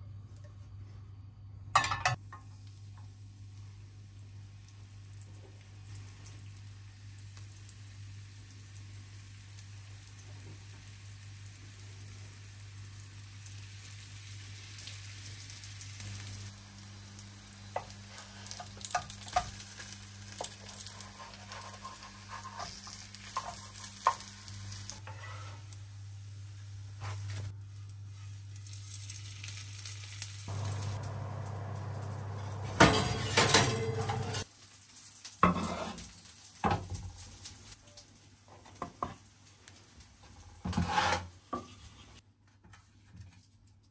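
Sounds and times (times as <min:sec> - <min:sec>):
cookware clattering: 0:01.8 - 0:02.2, 0:32.6 - 0:34.4
food sizzling in a frying pan: 0:01.8 - 0:42.2
low steady hum: 0:30.5 - 0:34.4.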